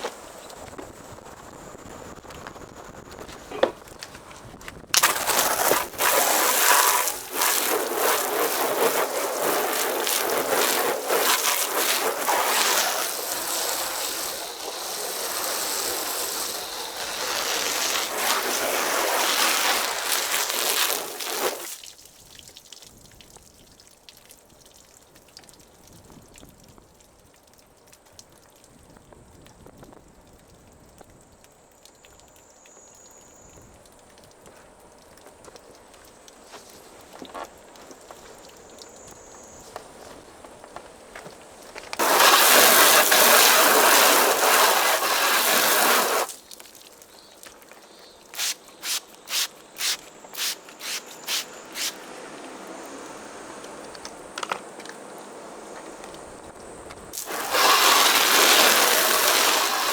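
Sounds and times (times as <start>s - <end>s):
hose spraying water on car: 5.0s - 22.1s, 42.0s - 47.0s, 48.2s - 55.8s, 57.2s - 59.9s.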